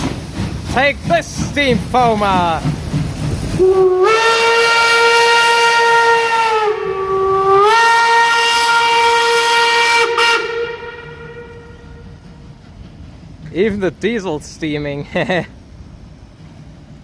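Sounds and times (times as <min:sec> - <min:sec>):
steam locomotive whistle: 0:03.6 - 0:12.1.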